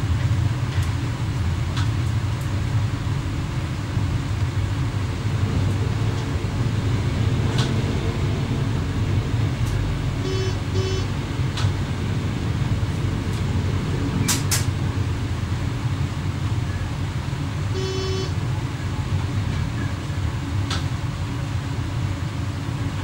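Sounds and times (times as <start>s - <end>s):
train cab drone: 0.0s - 23.0s
short electronic beeps: 10.2s - 11.1s, 17.8s - 18.3s.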